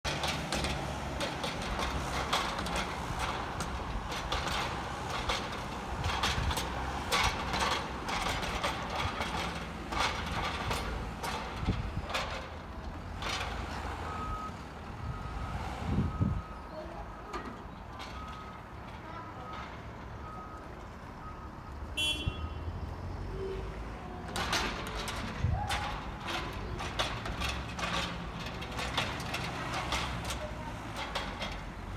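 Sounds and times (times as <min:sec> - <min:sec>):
diesel engine under load: 0:00.0 - 0:31.9
machine clanks and knocks: 0:00.1 - 0:14.4, 0:24.1 - 0:31.9
reversing alarm beeping: 0:14.1 - 0:17.3, 0:19.4 - 0:22.8.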